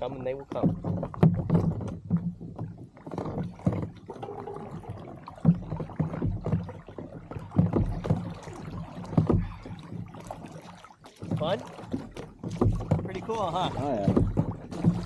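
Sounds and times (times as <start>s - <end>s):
knocks on hull: 0.0s - 15.0s
water slapping against hull: 0.0s - 15.0s.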